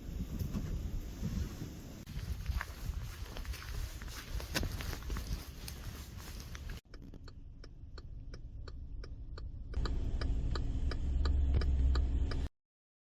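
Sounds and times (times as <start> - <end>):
low rumble: 0.0 - 12.5
regular ticking: 3.3 - 12.5.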